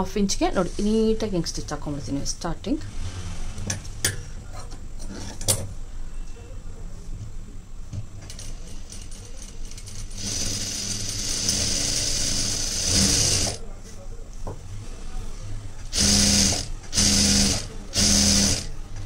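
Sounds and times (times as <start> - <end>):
sewing machine running: 8.7 - 13.6, 15.9 - 18.8.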